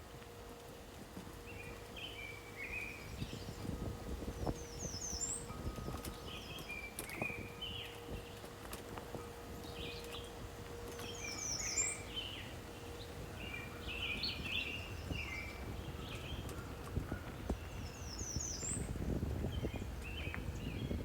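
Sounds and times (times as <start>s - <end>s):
songbirds chirping: 0.1s - 21.0s.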